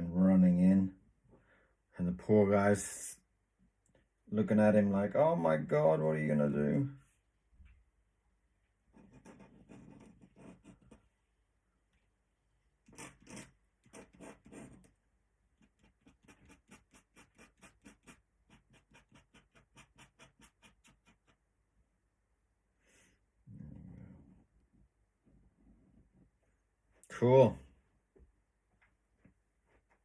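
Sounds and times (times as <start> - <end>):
pen scratching on paper: 8.9 - 11.1, 12.8 - 15.0, 15.6 - 21.4.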